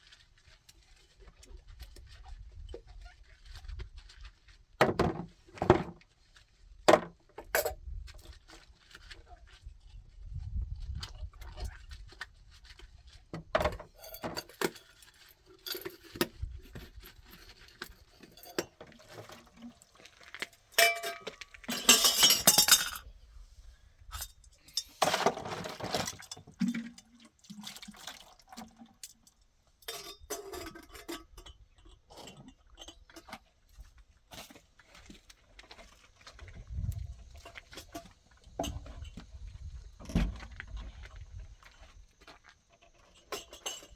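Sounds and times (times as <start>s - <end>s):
dishes and pots clinking: 20.8s - 23.0s, 29.8s - 33.3s, 43.1s - 43.9s
dishes clattering: 20.8s - 23.0s.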